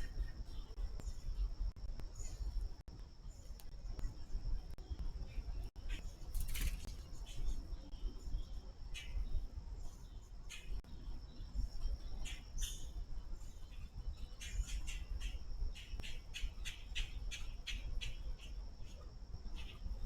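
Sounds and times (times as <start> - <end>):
woodpecker calling: 14.2 - 19.8.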